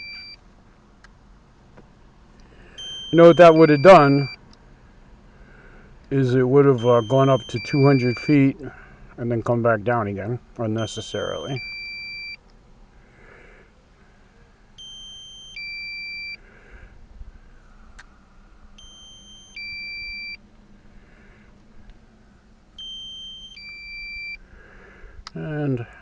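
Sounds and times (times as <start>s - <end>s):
two-tone warning beep: 0.0s - 0.4s, 2.8s - 4.4s, 6.6s - 8.6s, 10.8s - 12.4s, 14.8s - 16.4s, 18.8s - 20.4s, 22.8s - 24.4s.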